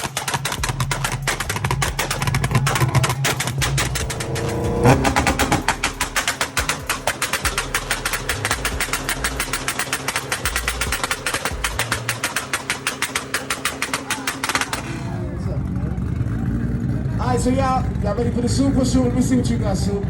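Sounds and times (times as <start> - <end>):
car exhaust pops on launch limiter: 0.0 - 15.2.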